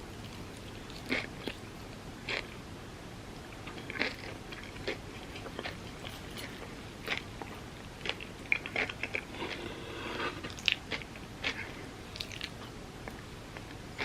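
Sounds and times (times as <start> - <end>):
chewing: 0.1 - 2.6, 3.5 - 9.7, 10.4 - 14.0.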